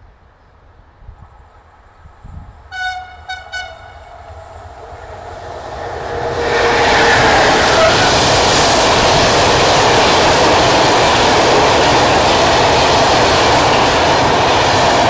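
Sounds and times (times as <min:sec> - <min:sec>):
train rumbling: 0:00.0 - 0:15.0
train horn blasts: 0:02.7 - 0:08.4.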